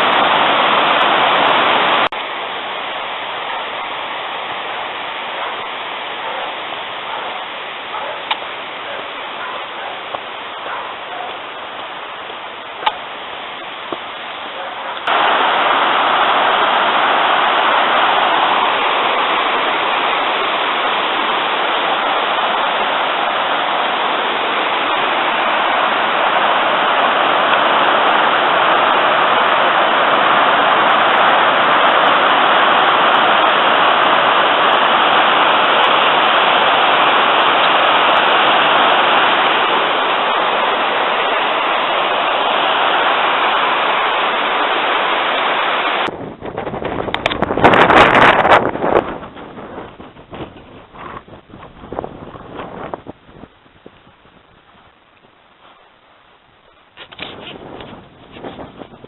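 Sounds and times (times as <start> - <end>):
river water rushing: 0.0 - 46.2.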